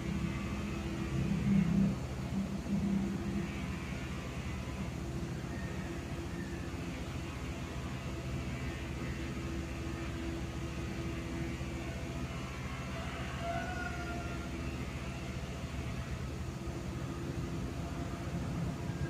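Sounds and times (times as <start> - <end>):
ceiling fan motor hum: 0.0 - 19.0.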